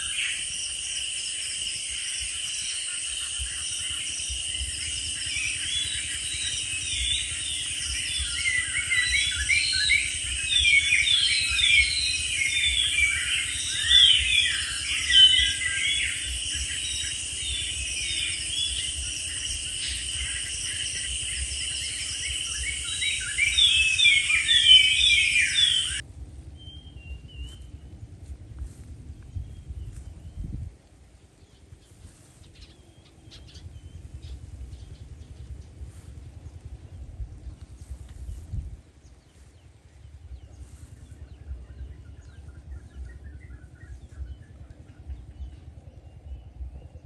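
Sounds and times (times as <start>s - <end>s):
birds chirping and calling: 0.0s - 26.0s, 29.3s - 47.0s
steady high-pitched buzz: 0.0s - 31.2s
faint low rumble: 0.0s - 47.0s.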